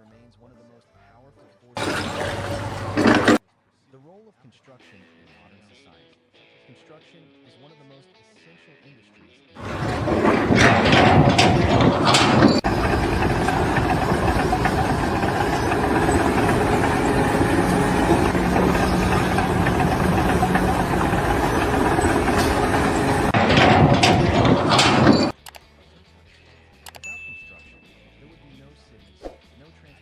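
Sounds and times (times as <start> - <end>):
construction machinery engine running: 1.8 - 3.4, 9.6 - 25.3.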